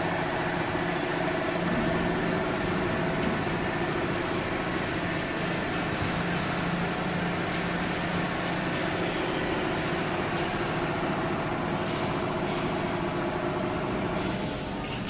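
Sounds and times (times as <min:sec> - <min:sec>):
hydraulic motor and pump humming: 0:00.0 - 0:15.0.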